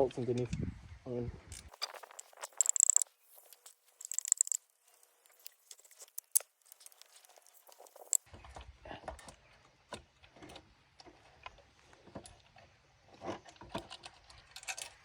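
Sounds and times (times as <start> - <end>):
metal tools and bolts clinking: 1.6 - 8.3.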